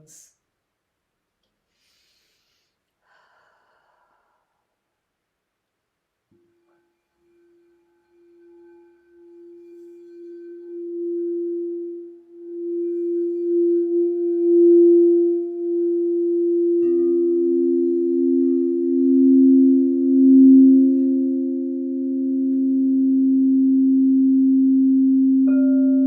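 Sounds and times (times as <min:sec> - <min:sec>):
crystal singing bowl tone: 0:06.4 - 0:26.0
lower singing bowl ringing: 0:06.6 - 0:26.0.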